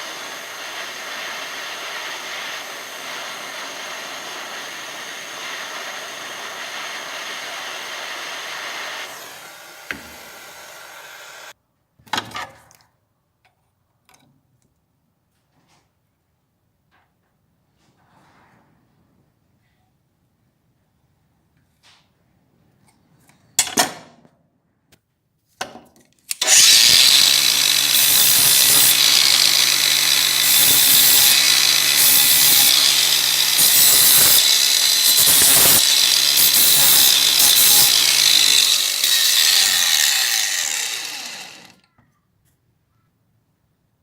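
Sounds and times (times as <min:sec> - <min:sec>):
power tool motor hum: 0:00.0 - 0:11.5, 0:26.3 - 0:41.8.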